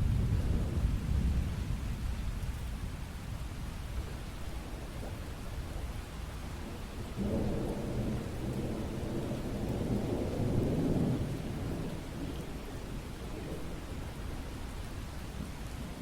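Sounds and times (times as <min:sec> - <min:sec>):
low rumble of thunder: 0:00.0 - 0:16.0
steady rain: 0:00.0 - 0:16.0.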